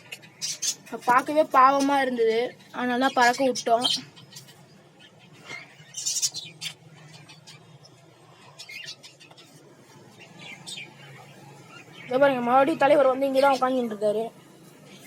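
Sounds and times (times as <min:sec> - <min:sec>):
parrots chirping: 0:00.0 - 0:01.0, 0:01.6 - 0:12.2.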